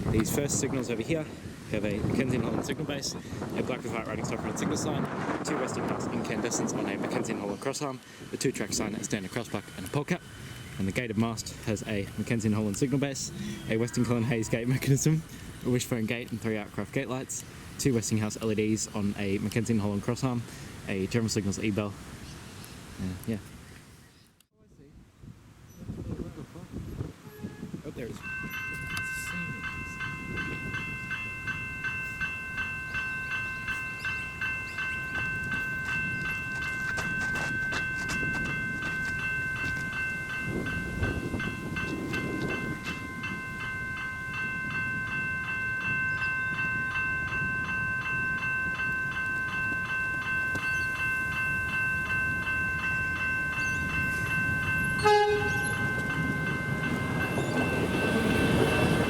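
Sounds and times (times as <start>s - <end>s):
electronic crossing bells ringing: 8.5s - 17.0s, 28.1s - 59.0s
approaching train rumble: 28.2s - 59.0s
train horn toot: 55.0s - 55.9s.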